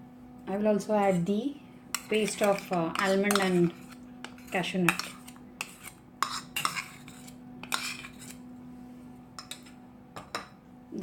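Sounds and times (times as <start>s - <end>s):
faint steady hum: 0.0s - 11.0s
spoon scraping and clinking on bowl: 1.9s - 8.4s, 9.4s - 10.5s.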